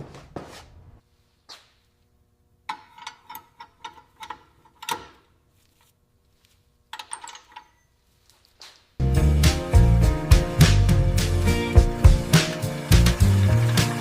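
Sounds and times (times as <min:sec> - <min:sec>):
music: 0:09.0 - 0:14.0.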